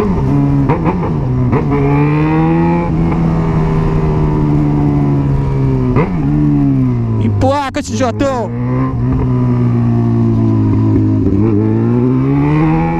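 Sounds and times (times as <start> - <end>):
motorcycle engine revving: 0.0 - 7.4, 8.0 - 12.9.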